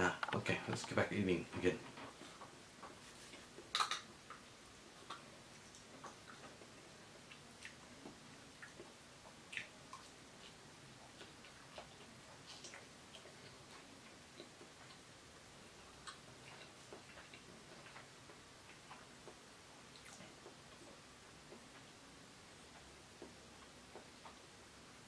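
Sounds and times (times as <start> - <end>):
eating mouth sounds: 15.8 - 21.6.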